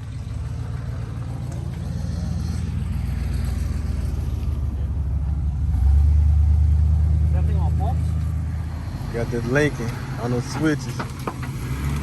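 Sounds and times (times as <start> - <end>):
car engine running: 0.0 - 6.4, 7.2 - 12.0.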